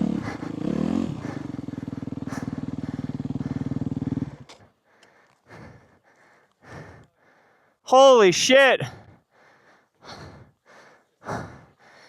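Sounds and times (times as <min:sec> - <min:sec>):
dirt bike engine running: 0:00.0 - 0:04.7
heavy breathing: 0:00.0 - 0:07.9, 0:08.8 - 0:12.0.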